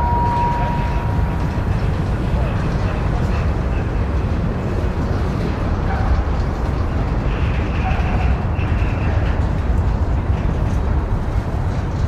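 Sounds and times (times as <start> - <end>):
train rumbling past: 0.0 - 6.0.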